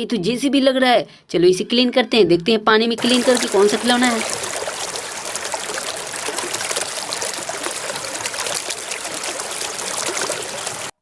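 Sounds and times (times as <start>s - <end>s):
water trickling and splashing: 3.0s - 11.0s.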